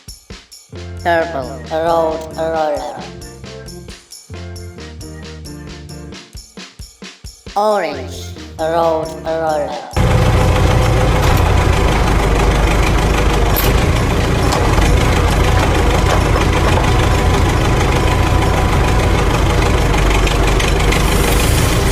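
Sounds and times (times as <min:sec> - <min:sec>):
road roller engine running: 0:10.0 - 0:21.9.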